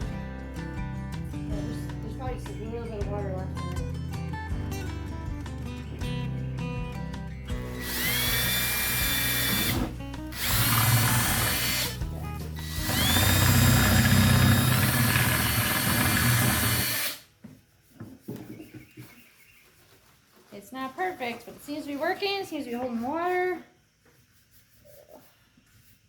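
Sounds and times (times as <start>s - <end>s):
power drill whining: 7.5s - 17.3s.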